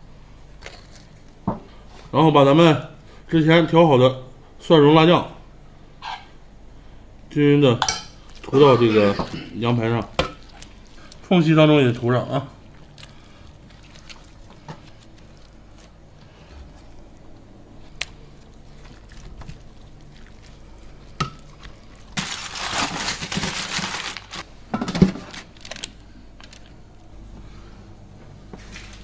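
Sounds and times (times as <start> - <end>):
gloved hands handling meat: 8.3 - 24.4
aluminium foil crinkling: 12.6 - 24.4, 25.0 - 27.0.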